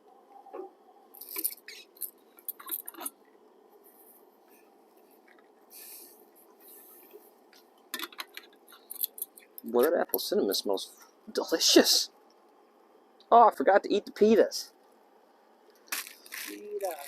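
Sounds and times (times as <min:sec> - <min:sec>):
soft hissing rustles: 0:01.1 - 0:07.8.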